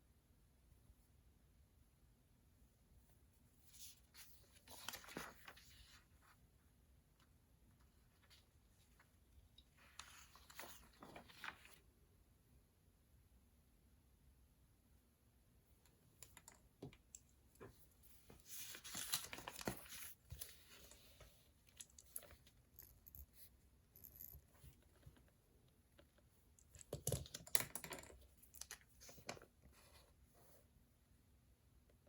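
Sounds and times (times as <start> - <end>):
paper rustling: 3.7 - 6.4, 9.8 - 11.8, 18.1 - 21.3.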